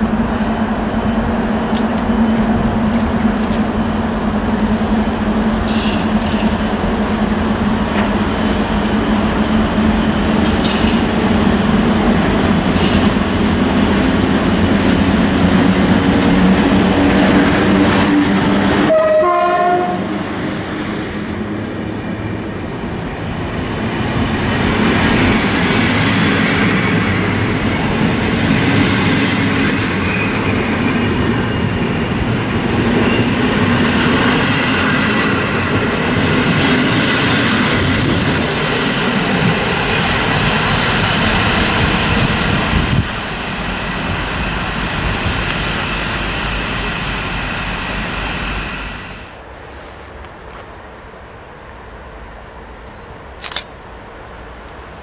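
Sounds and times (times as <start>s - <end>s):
train wheels rolling on rails: 0.0s - 50.7s
electric locomotive hum: 0.0s - 53.1s
train horn blast: 18.7s - 20.3s.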